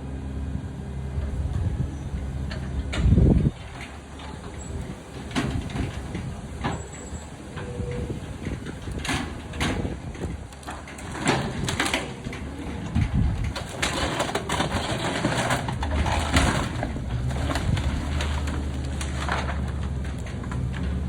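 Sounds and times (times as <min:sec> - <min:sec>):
truck engine and hydraulics rumbling: 0:00.0 - 0:21.0
branches cracking and crunching: 0:13.4 - 0:21.0.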